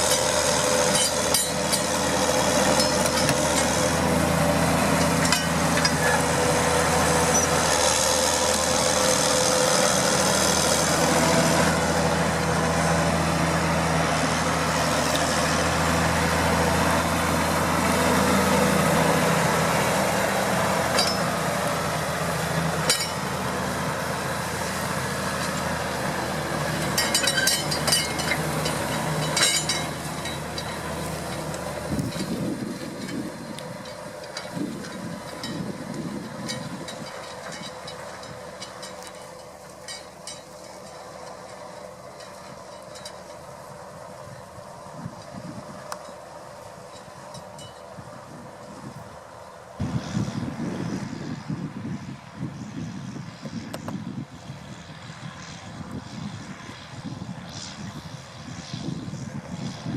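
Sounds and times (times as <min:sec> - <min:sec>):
tractor diesel engine running: 0:00.0 - 0:59.9
metallic clinks and rattles: 0:26.8 - 0:31.5.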